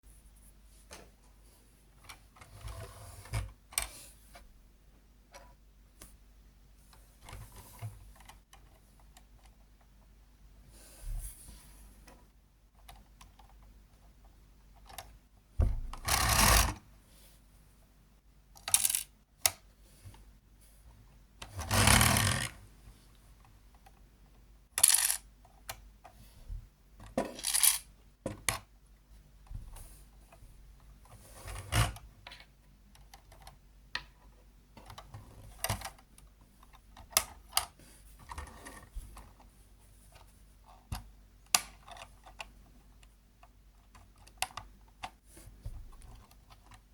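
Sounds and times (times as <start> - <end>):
plastic parts clattering: 18.6 - 19.1, 24.8 - 25.2, 27.1 - 27.9
plastic parts clicking and rattling: 18.6 - 19.5, 21.4 - 22.6, 24.8 - 25.8, 27.0 - 28.7, 40.1 - 46.9.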